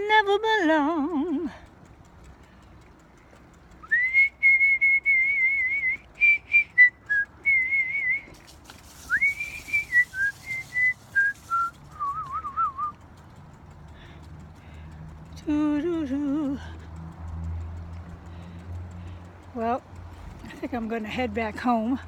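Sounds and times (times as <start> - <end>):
person whistling a tune: 3.8 - 8.4, 9.0 - 13.0.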